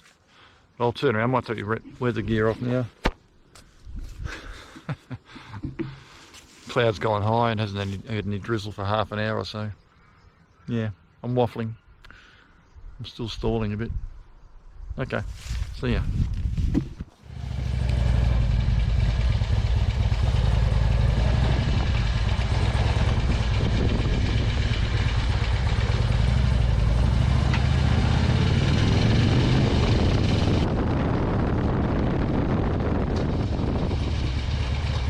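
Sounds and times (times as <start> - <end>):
motorcycle engine running: 17.2 - 35.0.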